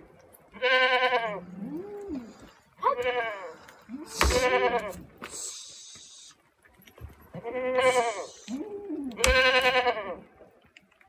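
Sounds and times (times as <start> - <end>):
goats bleating: 2.8 - 5.1, 7.4 - 10.2
short hiss: 5.2 - 6.4.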